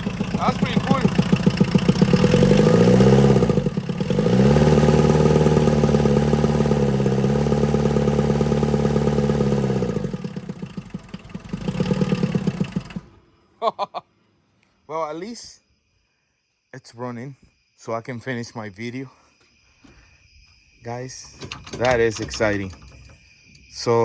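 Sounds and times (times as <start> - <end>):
diesel engine revving: 0.0 - 13.2.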